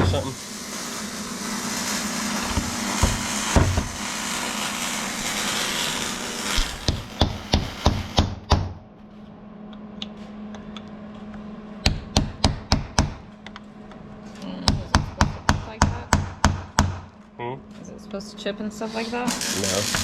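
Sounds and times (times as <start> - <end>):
hammer striking a punch: 6.9 - 8.8, 11.8 - 13.2, 14.7 - 17.1.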